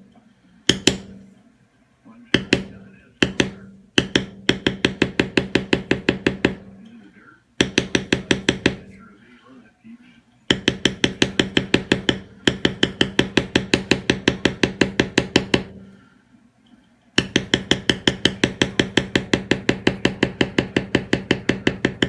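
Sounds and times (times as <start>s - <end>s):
mallet tapping leather stamping tool: 0.7s - 1.2s, 2.3s - 6.8s, 7.6s - 8.9s, 10.5s - 15.9s, 17.2s - 22.0s.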